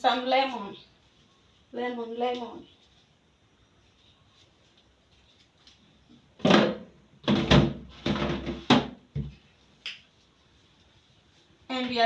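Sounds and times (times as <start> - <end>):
refrigerator door knocks and scrapes: 6.5 - 9.3.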